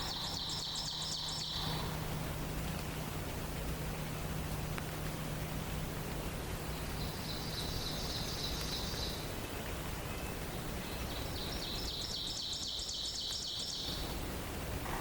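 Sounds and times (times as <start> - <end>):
songbird trilling: 0.0 - 2.0, 10.2 - 14.1
forest ambience hiss: 0.0 - 15.0.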